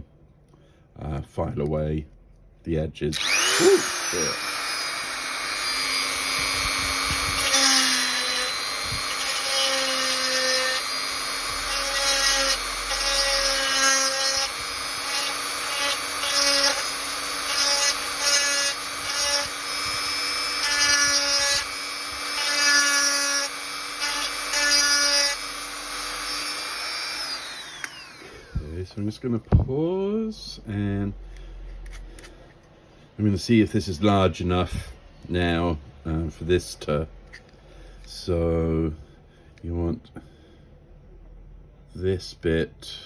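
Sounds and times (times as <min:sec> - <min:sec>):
drill bit grinding plastic: 0:03.1 - 0:28.8
electric drill whining: 0:03.1 - 0:28.8.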